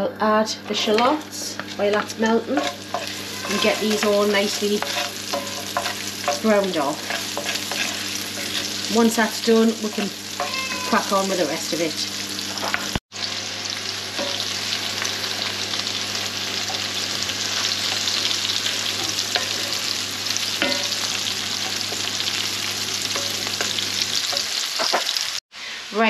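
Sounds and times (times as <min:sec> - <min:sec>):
wooden spoon stirring: 0:00.6 - 0:08.9
shallots sizzling in ghee: 0:00.6 - 0:26.0.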